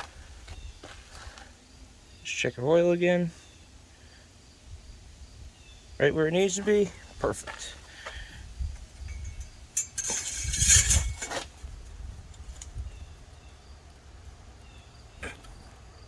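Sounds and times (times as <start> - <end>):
light metallic clinks: 8.8 - 11.4
handling noise: 8.8 - 11.5.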